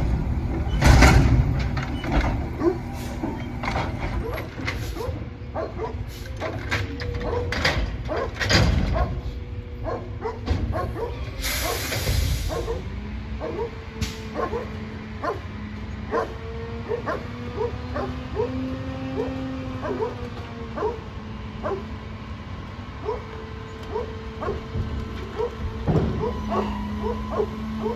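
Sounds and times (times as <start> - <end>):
garbage truck running hum: 0.0 - 27.9
hissing air burst: 11.4 - 12.7.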